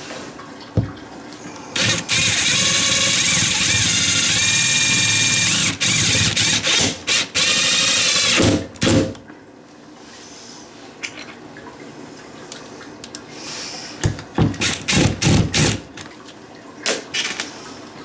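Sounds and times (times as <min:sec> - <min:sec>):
power drill whirring: 0:01.8 - 0:09.0, 0:14.6 - 0:16.0.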